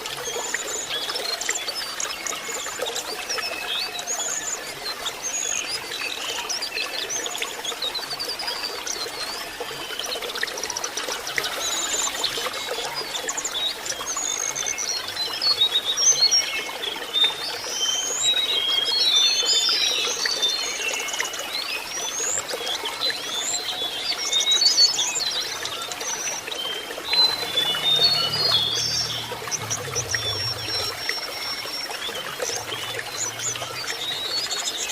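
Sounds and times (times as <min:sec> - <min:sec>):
running water: 0:00.0 - 0:34.9.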